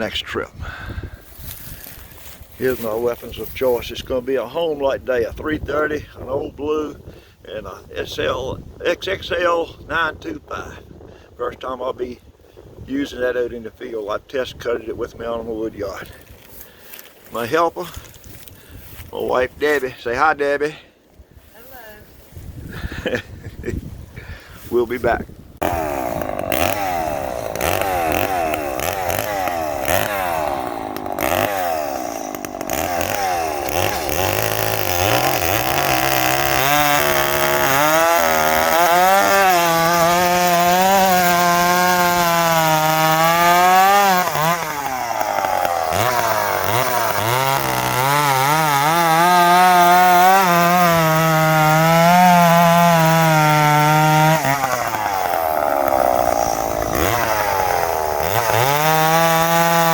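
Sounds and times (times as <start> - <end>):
chainsaw cutting wood: 25.6 - 59.9.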